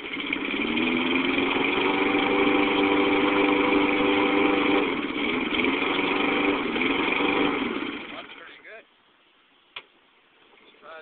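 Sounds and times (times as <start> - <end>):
lawn mower engine running: 0.0 - 8.6.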